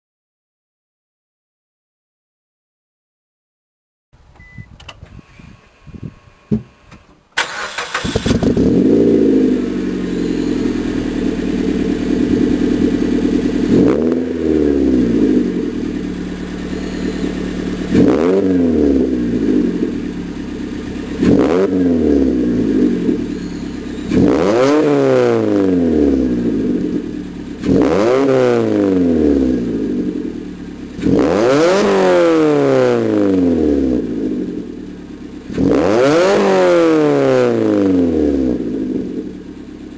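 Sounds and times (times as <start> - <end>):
car engine starting and idling: 4.3 - 36.2, 37.6 - 39.9
car engine revving: 7.4 - 39.9.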